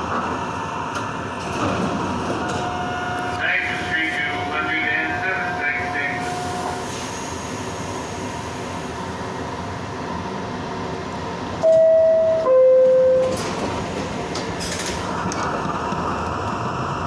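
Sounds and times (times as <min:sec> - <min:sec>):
train interior hum: 0:00.0 - 0:17.0
subway door two-tone chime: 0:02.4 - 0:06.8, 0:11.6 - 0:14.9.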